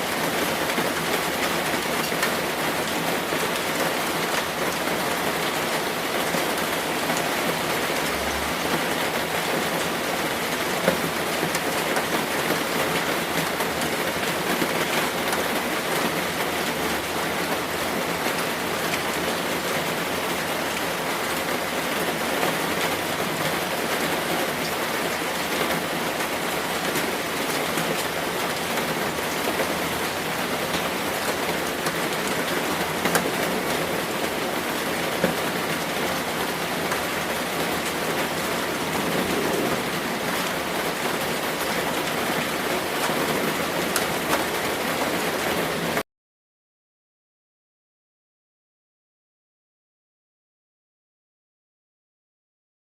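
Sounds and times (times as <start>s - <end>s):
steady rain hiss: 0.0s - 46.0s.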